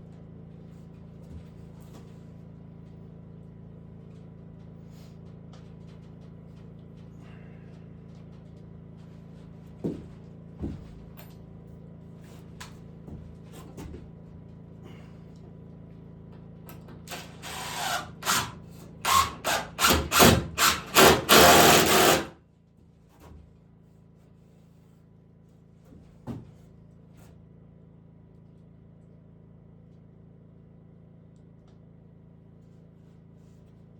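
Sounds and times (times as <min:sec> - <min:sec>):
steady low hum: 0:00.0 - 0:33.9
power drill driving into wood: 0:17.1 - 0:22.3.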